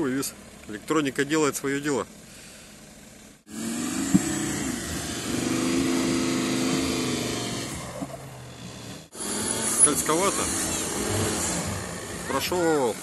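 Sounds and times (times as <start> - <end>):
engine running hard under load: 3.5 - 13.0.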